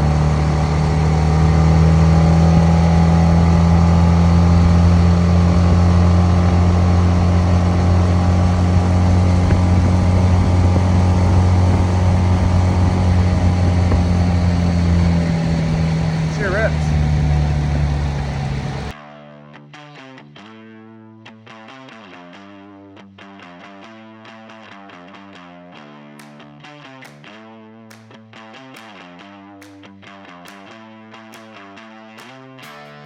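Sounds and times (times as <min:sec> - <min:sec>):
outboard motor running: 0:00.0 - 0:18.9.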